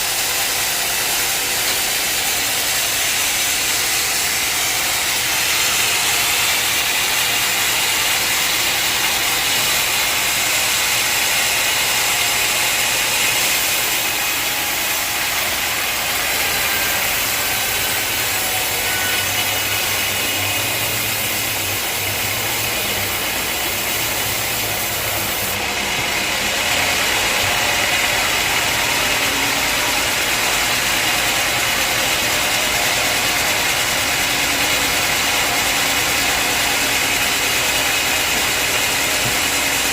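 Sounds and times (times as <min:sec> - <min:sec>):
sawmill machinery whirring: 0:00.0 - 0:39.9.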